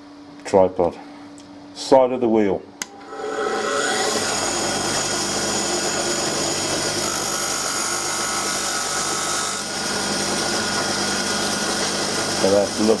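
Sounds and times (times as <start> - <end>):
motor hum: 2.7 - 13.0
bench grinder grinding chalk: 3.0 - 13.0.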